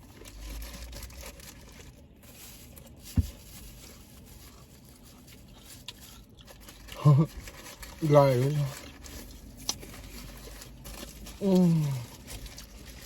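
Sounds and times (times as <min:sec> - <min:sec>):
dull thump: 0:03.1 - 0:03.5.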